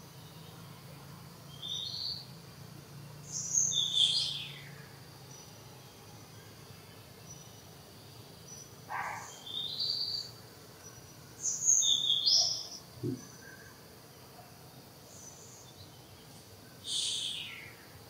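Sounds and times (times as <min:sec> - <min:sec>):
insects humming: 0:00.0 - 0:18.0
bird whistled chirps: 0:16.9 - 0:17.6.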